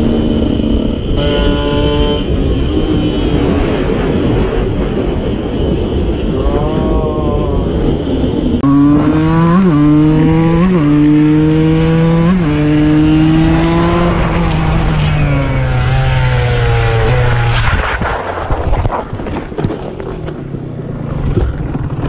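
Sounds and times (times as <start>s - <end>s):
two-stroke engine at high revs: 0.0s - 4.6s, 8.6s - 17.6s
wind noise: 0.0s - 22.0s.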